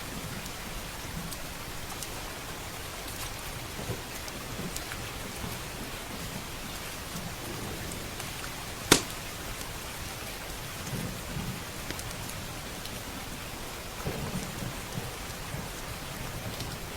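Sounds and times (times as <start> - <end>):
heavy rain: 0.0 - 16.9
wood fire pop: 8.9 - 9.2.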